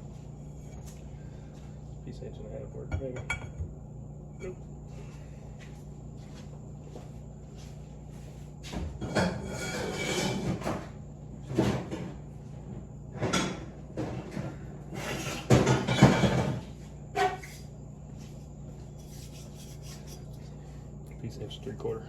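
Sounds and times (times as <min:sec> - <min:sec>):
metal tools clattering and scraping: 0:09.0 - 0:10.6.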